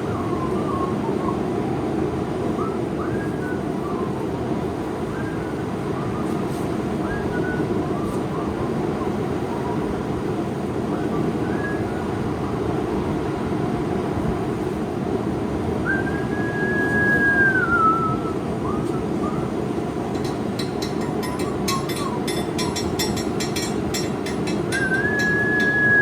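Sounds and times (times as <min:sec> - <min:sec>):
whistling tone sliding down: 0:00.0 - 0:01.5, 0:02.6 - 0:04.2, 0:05.1 - 0:08.8, 0:15.8 - 0:19.5, 0:24.7 - 0:26.0.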